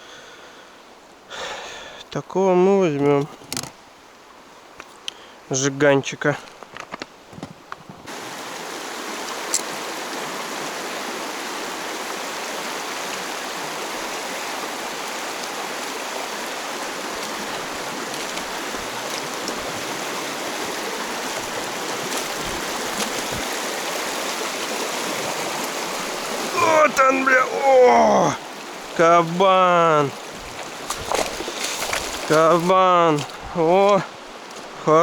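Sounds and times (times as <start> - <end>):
river water rushing: 8.1 - 35.0.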